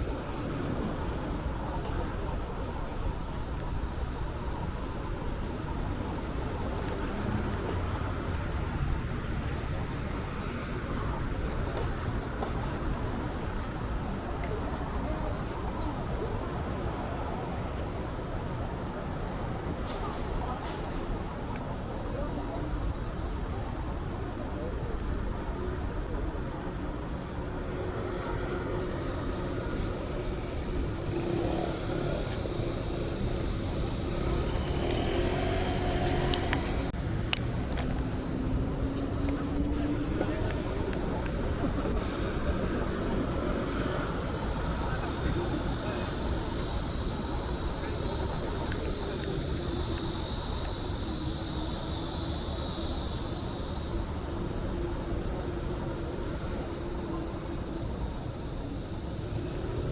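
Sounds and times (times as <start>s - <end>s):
bicycle road noise: 0.0s - 59.9s
street traffic rumble: 0.0s - 59.9s
high hiss: 19.8s - 37.2s, 38.0s - 59.9s
vehicle passing: 28.0s - 52.9s.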